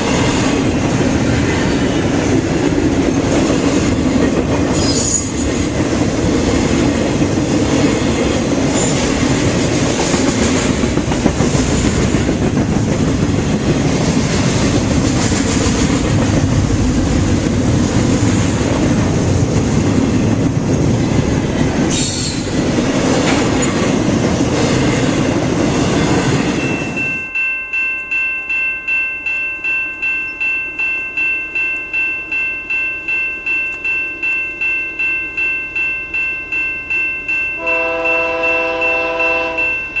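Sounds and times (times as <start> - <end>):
crossing bell ringing: 0.0 - 6.2, 26.0 - 40.0
freight train wheels clattering: 0.0 - 27.2.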